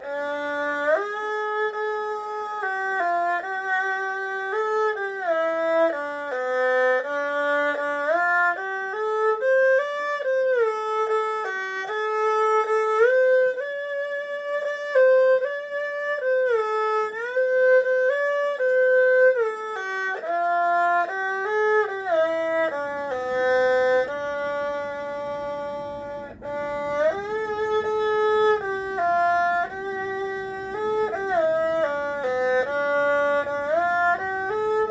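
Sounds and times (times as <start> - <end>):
erhu melody with sliding notes: 0.0 - 34.9.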